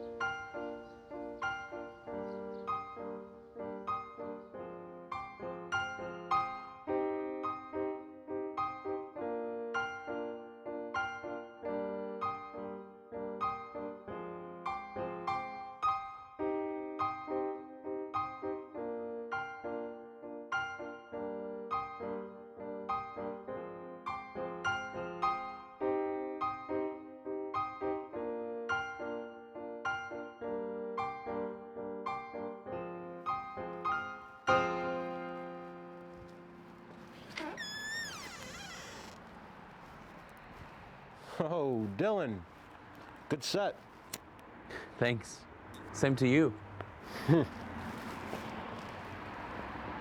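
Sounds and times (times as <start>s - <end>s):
piano music: 0.0s - 37.6s.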